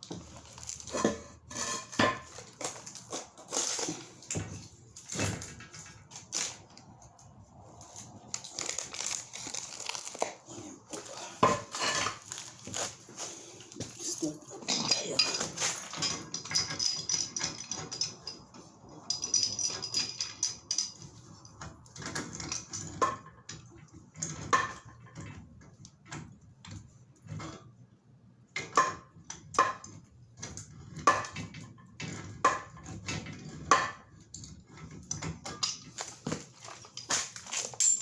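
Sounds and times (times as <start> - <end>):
metal pipe fittings clinking: 13.8 - 21.1, 35.5 - 38.0.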